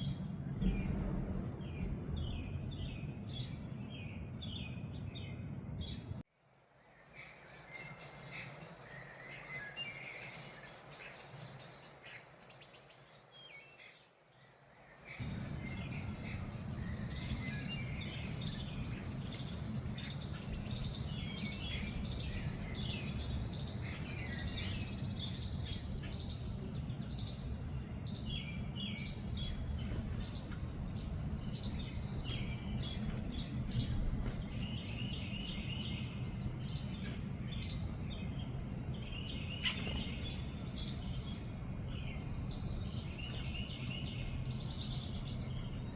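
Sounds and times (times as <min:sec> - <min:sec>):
low rumble: 0:00.0 - 0:06.2, 0:15.2 - 0:43.2
songbirds chirping: 0:00.0 - 0:45.9.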